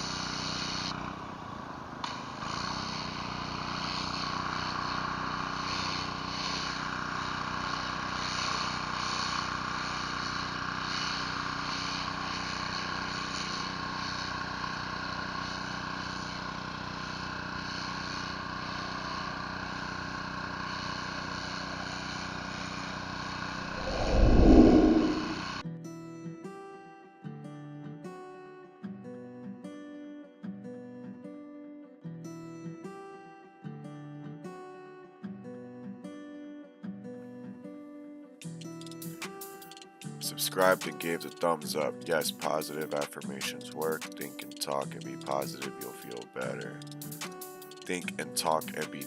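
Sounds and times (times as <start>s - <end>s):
pressure washer engine running: 0.0s - 15.3s
faint regular pulsing: 23.7s - 25.6s
loud low rumble: 23.7s - 25.6s.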